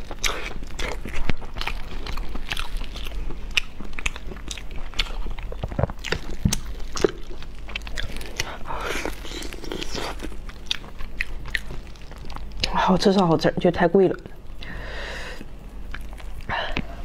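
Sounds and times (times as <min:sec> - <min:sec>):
person chewing sticky meat: 0:00.0 - 0:12.8, 0:15.4 - 0:17.0.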